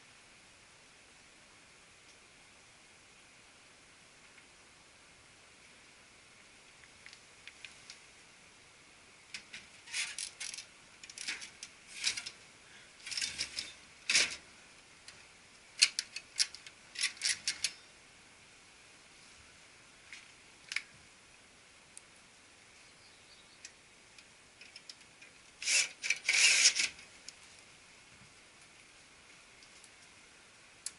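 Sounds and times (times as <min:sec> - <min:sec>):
hard plastic clicks and rattles: 0:15.8 - 0:17.8.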